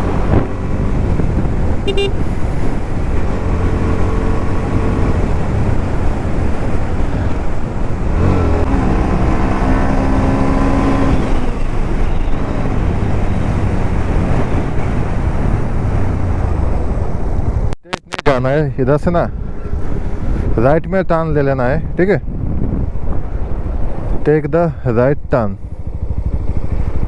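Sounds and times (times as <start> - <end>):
motorcycle engine and road noise: 0.0 - 27.0.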